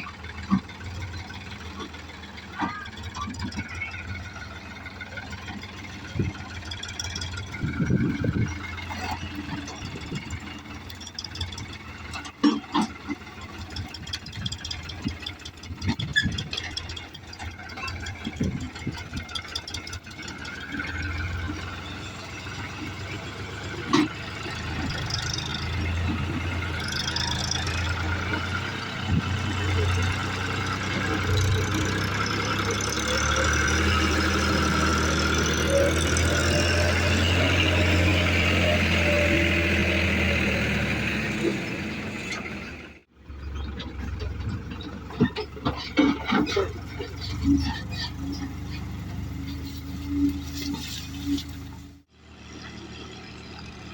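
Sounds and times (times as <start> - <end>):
tractor diesel engine running: 0.0 - 53.9
knocks and rattles: 4.8 - 35.3, 43.4 - 49.9.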